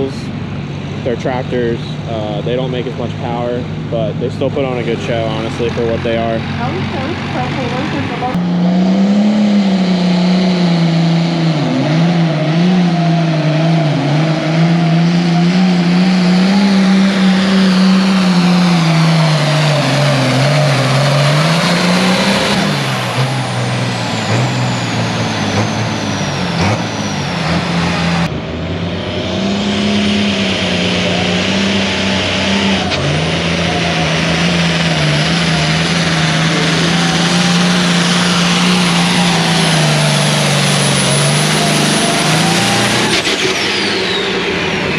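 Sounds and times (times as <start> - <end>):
turbocharger whistle: 8.8 - 28.3, 29.1 - 44.9.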